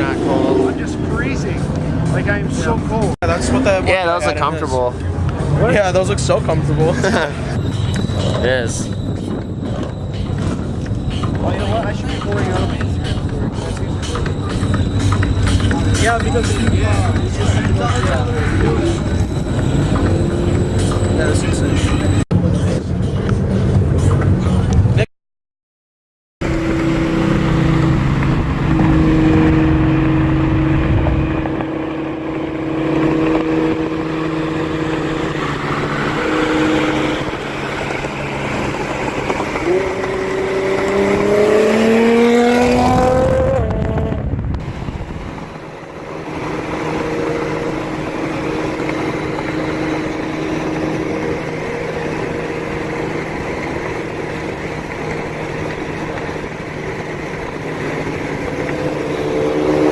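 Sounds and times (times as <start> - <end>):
car engine accelerating: 0.0 - 25.0, 26.4 - 59.9.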